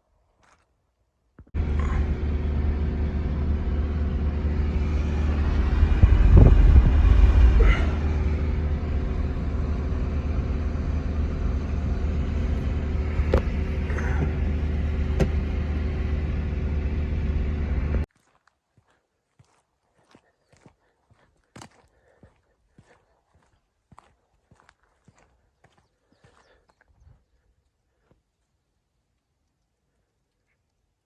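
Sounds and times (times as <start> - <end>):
engine low rumble: 1.4 - 18.1.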